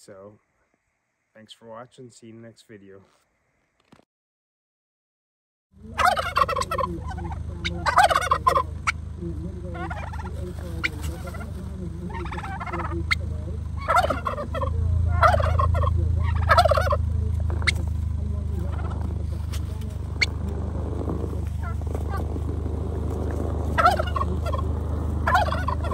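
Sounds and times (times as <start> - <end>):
steady low hum: 5.8 - 25.9
turkeys gobbling: 5.8 - 25.9.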